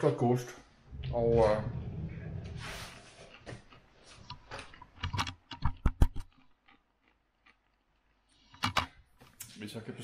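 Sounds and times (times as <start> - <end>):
popcorn being chewed: 3.0 - 8.5
sharp clicks and knocks: 3.7 - 7.8, 8.5 - 9.4.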